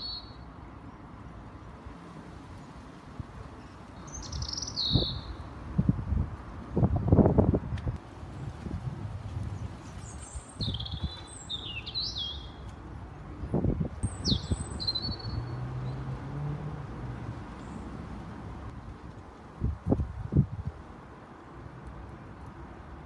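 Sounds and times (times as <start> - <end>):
birds chirping and whistling: 4.1 - 5.4, 10.0 - 12.6, 14.0 - 15.5.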